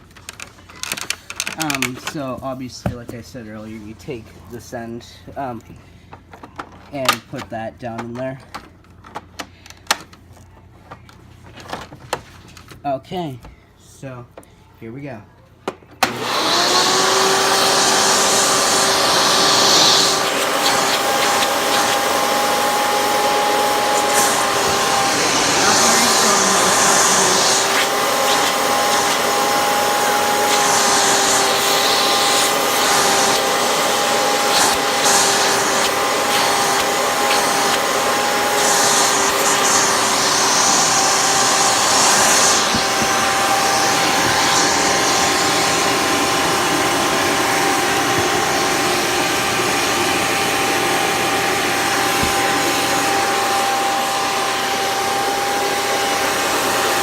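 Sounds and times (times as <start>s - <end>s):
vacuum cleaner motor whine: 15.8s - 57.0s
air hissing into vacuum hose: 16.5s - 49.0s.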